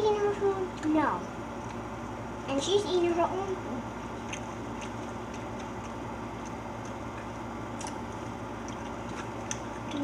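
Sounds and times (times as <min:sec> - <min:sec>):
steady low hum: 0:00.0 - 0:10.0
light eating clicks: 0:01.6 - 0:01.9, 0:04.0 - 0:10.0.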